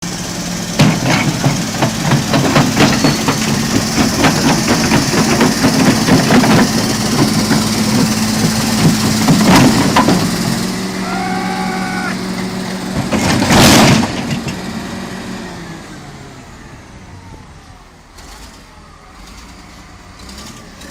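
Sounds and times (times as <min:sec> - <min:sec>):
heavy machine engine humming: 0:00.0 - 0:20.9
metallic clanks and knocks: 0:00.8 - 0:10.6.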